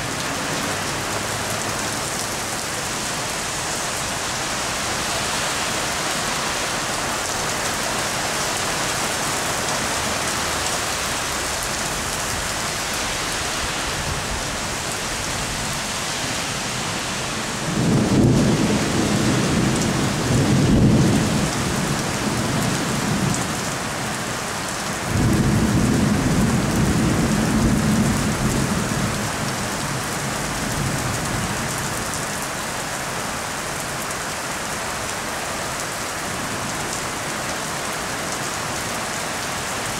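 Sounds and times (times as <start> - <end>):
heavy rain falling: 0.0 - 39.9
thunder rumbling: 17.6 - 22.0, 25.1 - 31.2.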